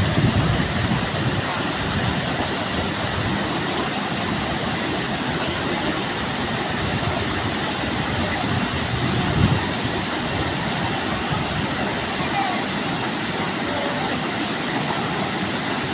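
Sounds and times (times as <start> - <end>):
waterfall roaring: 0.0 - 15.9.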